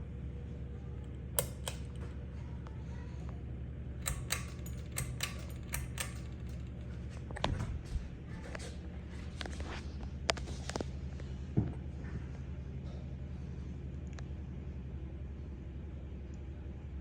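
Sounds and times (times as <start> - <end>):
ceiling fan humming: 0.0 - 17.0
sharp clicks: 1.0 - 2.1, 4.0 - 7.3.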